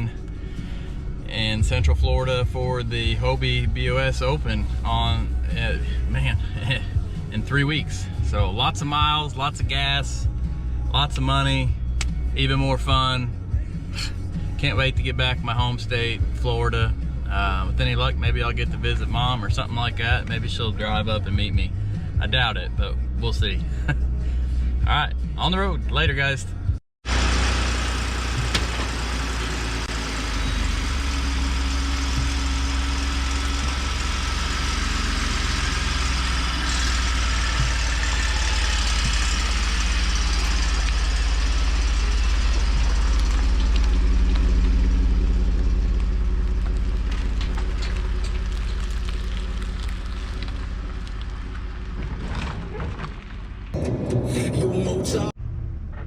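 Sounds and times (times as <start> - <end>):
vehicle deep rumble: 0.0 - 56.0.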